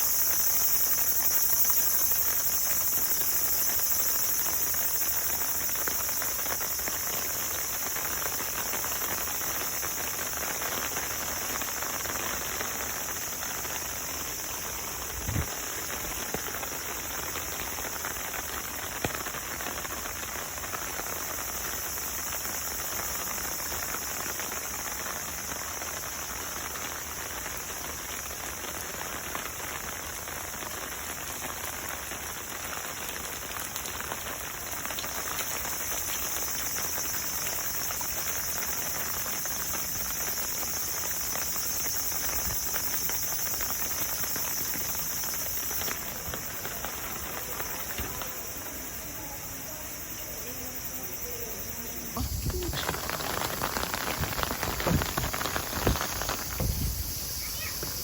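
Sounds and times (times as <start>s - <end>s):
water pattering: 52.0s - 58.0s.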